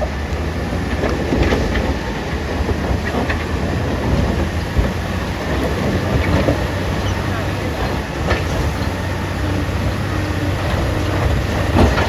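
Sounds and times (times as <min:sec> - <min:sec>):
diesel engine low rumble: 0:00.0 - 0:12.0.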